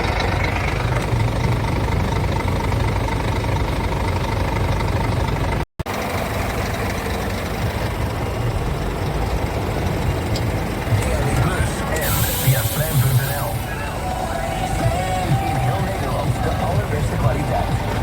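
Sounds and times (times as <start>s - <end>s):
diesel truck engine idling: 0.0s - 18.0s.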